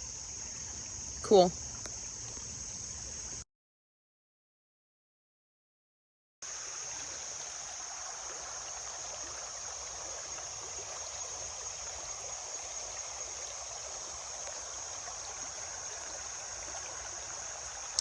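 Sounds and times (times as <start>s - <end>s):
river water trickling: 0.0s - 3.4s, 6.4s - 18.0s
high-pitched hiss: 6.4s - 18.0s.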